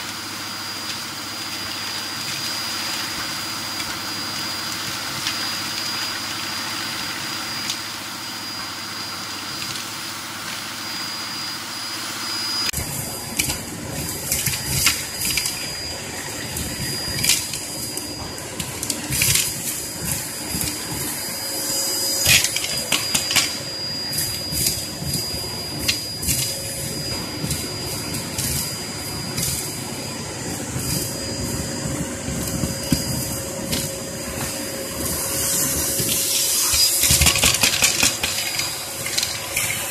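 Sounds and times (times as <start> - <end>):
vacuum cleaner motor whine: 0.0 - 39.9
ash and cinders rattling through vacuum: 35.8 - 39.9.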